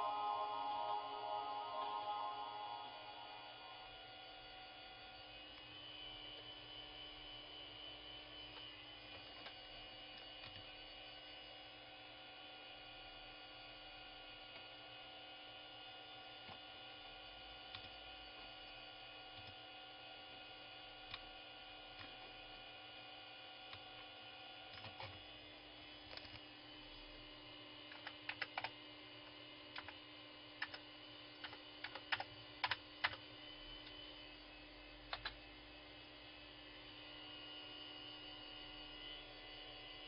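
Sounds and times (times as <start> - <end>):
computer hardware humming: 0.0 - 4.2, 30.6 - 37.9.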